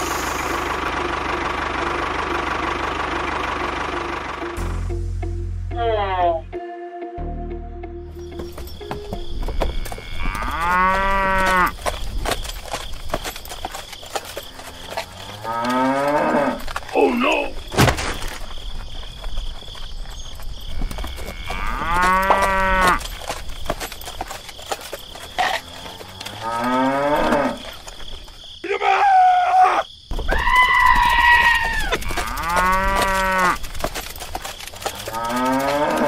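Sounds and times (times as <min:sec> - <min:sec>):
cows mooing: 0:09.5 - 0:12.0, 0:14.5 - 0:17.4, 0:20.8 - 0:23.1, 0:25.4 - 0:27.8, 0:30.6 - 0:33.7, 0:34.8 - 0:36.0.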